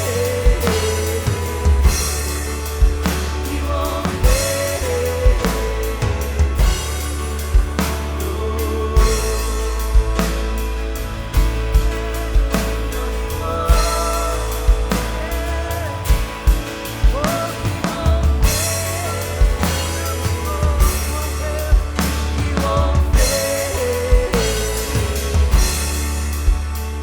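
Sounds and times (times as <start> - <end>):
bass guitar: 0.0 - 27.0
drum kit beat: 0.0 - 27.0
sliding lead melody: 0.0 - 27.0.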